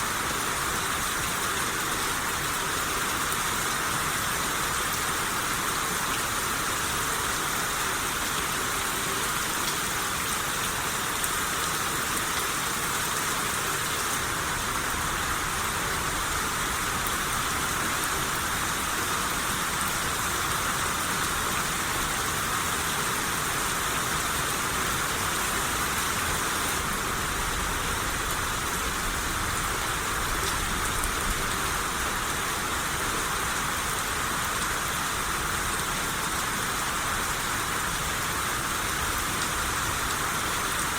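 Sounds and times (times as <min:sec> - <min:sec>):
rain shower hissing: 0:00.0 - 0:40.9.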